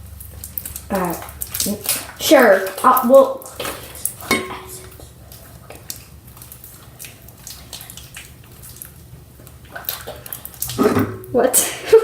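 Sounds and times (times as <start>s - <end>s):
slime squishing: 0.0s - 11.8s.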